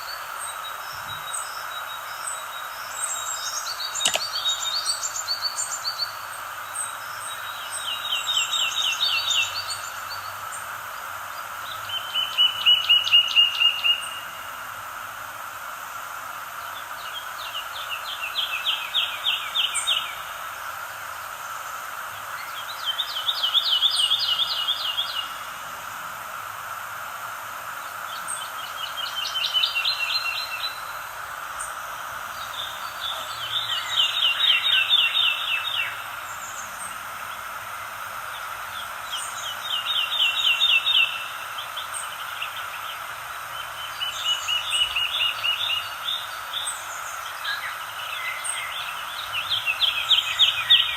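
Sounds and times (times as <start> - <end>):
songbird trilling: 0.0 - 10.6, 31.6 - 37.0
steady background hiss: 0.0 - 50.9.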